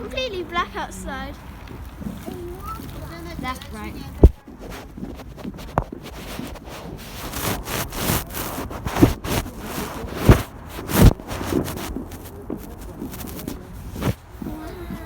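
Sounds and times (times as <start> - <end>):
handheld microphone rustling: 1.6 - 15.0
dull thumps on microphone: 4.1 - 15.0.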